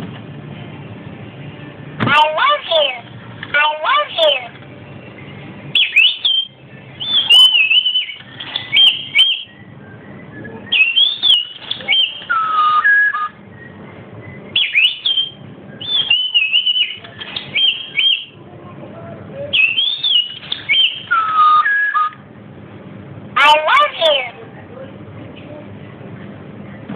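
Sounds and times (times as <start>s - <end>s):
talking bird whistling: 5.8s - 18.4s, 19.5s - 22.2s.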